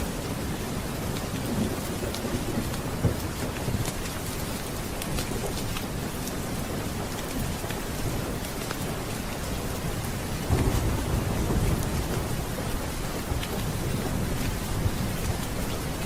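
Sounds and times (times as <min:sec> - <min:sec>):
heavy rain hissing: 0:00.0 - 0:16.0
rain drops pattering: 0:00.0 - 0:16.0
thunder rumbling: 0:10.2 - 0:16.0.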